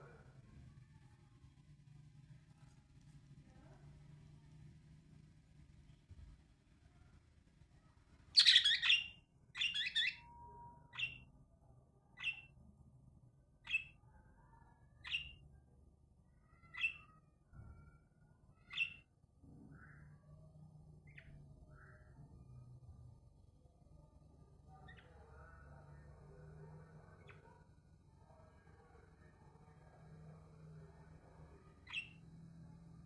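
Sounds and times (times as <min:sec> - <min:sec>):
short sharp bird chirps: 0:08.4 - 0:10.2
harsh rasping bird calls: 0:08.4 - 0:10.3.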